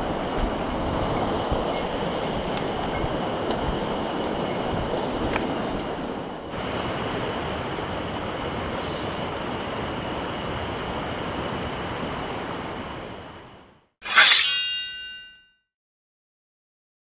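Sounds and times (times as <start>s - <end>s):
stream water rushing: 6.5s - 12.7s.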